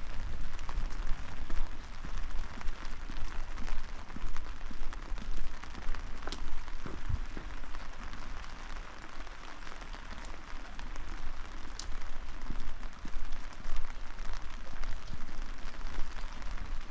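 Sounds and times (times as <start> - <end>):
rain drops ticking: 0.0 - 16.9.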